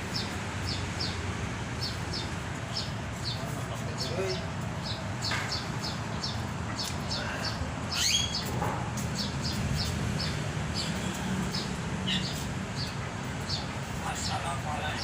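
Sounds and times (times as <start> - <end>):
caged birds chirping: 0.0 - 15.0
sweeping bird call: 5.8 - 8.6.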